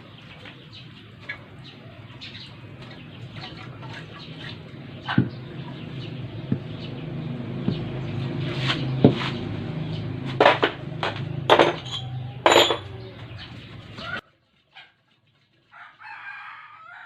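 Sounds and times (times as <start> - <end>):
metal tools clanking: 10.3 - 13.4
sharp metal clinks: 11.5 - 13.0.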